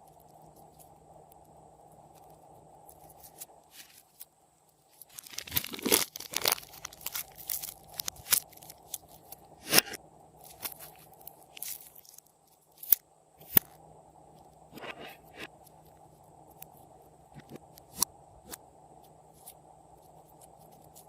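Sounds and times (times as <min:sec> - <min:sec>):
slime crackling and popping: 0:05.0 - 0:12.2.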